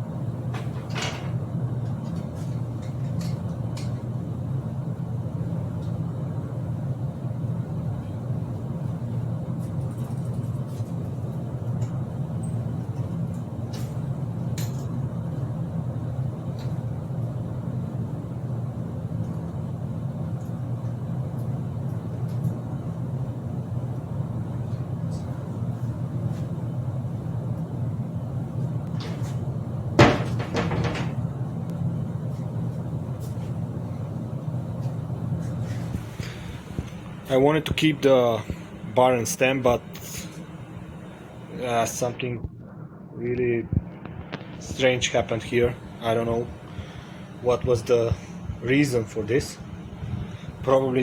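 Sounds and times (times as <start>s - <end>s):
low hum: 10.8s - 51.0s.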